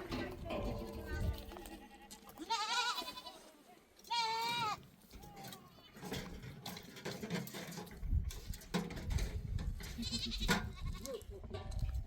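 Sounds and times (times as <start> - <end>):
small livestock bleating: 0.6 - 4.9, 9.9 - 11.3.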